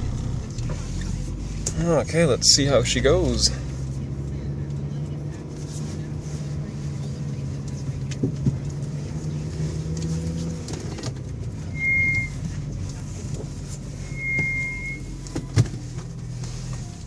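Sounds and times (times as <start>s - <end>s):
car engine and road noise: 0.0s - 17.0s
short high-pitched tones: 14.1s - 15.1s.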